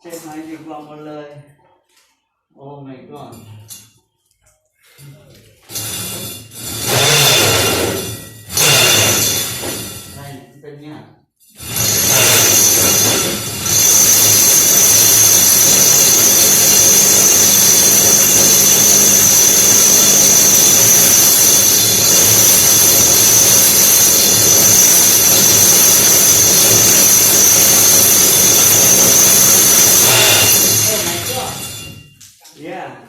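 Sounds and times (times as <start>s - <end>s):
electric drill boring into brick: 5.7s - 10.2s, 11.6s - 32.2s.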